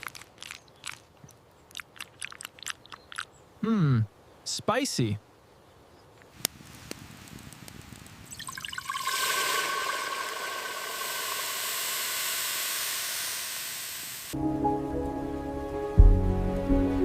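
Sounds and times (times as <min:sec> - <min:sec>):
crackles: 0:00.0 - 0:03.4, 0:06.2 - 0:14.4
hissing rush of water or steam: 0:08.3 - 0:14.4.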